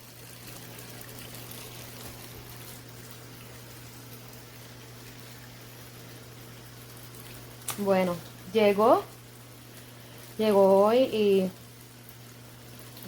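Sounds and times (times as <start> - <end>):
washing machine low hum: 0.0 - 13.0
washing machine water rushing: 0.0 - 13.0.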